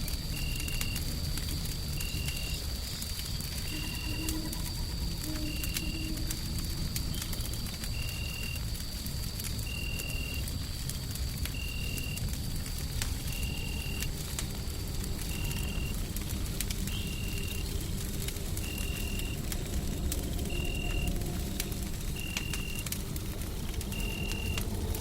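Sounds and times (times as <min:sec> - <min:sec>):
wood fire crackling: 0:00.0 - 0:25.0
faint steady high tone: 0:03.6 - 0:06.6.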